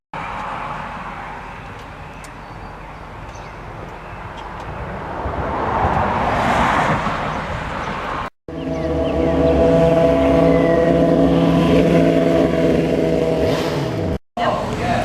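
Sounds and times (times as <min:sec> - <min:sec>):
wind noise rushing: 0:04.8 - 0:08.3
motorcycle running: 0:08.5 - 0:15.0.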